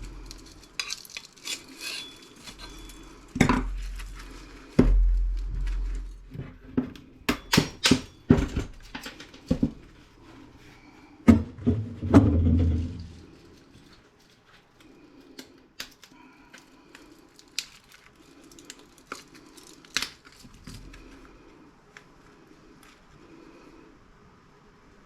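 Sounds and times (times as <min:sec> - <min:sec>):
heavy thumps: 0:04.7 - 0:08.8.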